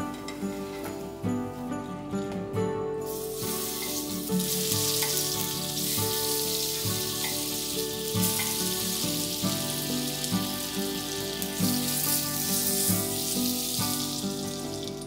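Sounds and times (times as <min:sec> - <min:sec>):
background music: 0:00.0 - 0:15.0
butter sizzling in a pan: 0:03.1 - 0:15.0.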